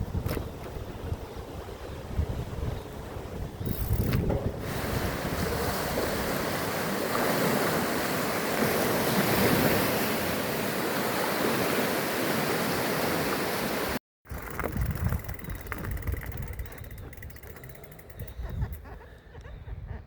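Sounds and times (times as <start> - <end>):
wind buffeting microphone: 0.0 - 7.5, 14.3 - 20.0.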